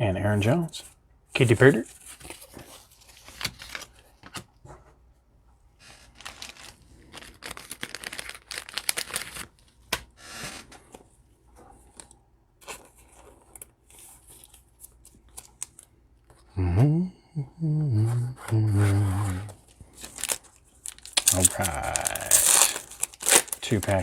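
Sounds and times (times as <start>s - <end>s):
foil wrapper tearing and crinkling: 6.0s - 9.9s, 19.9s - 24.0s
cards rustling: 18.8s - 24.0s.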